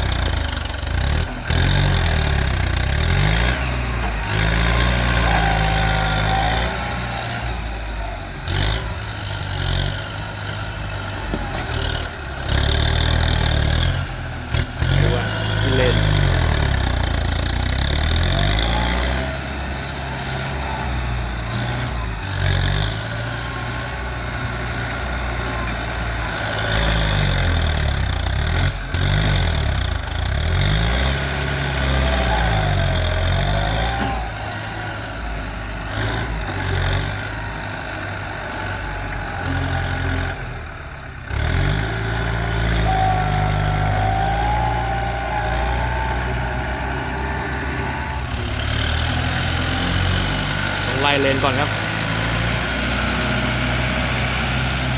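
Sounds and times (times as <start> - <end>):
tractor diesel engine under load: 0.0 - 54.9.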